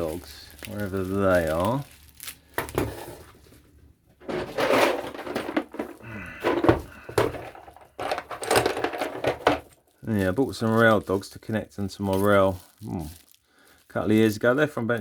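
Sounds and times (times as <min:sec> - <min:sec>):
objects clattering and rustling: 0:00.0 - 0:11.2
hard objects knocking: 0:04.2 - 0:09.8.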